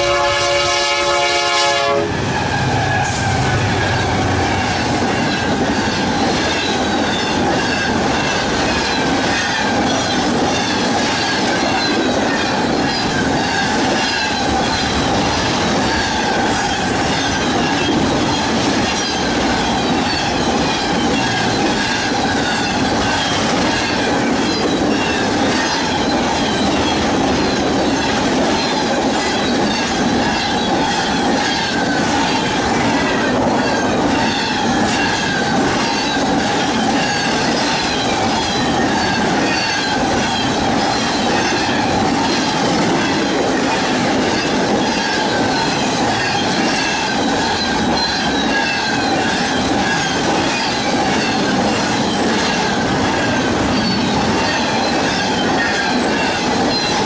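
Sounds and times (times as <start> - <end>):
train wheels rumbling on rail: 0.0 - 57.0
high wheel squeal: 15.9 - 43.4, 44.2 - 57.0.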